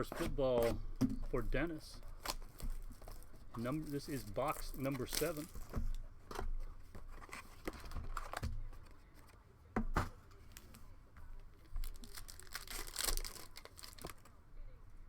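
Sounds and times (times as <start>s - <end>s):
card box wrapping crinkling: 1.4s - 9.3s, 11.6s - 14.3s
tearing crackle: 2.1s - 5.6s, 11.8s - 14.3s.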